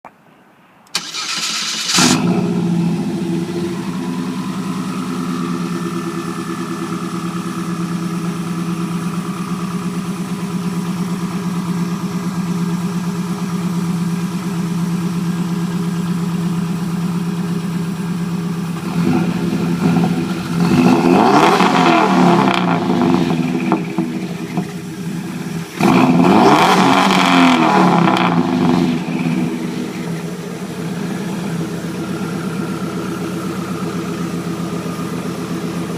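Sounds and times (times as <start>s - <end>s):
engine cranking and starting: 0.9s - 2.5s
engine idling: 0.9s - 35.9s
engine revving: 1.0s - 5.2s, 18.8s - 31.5s.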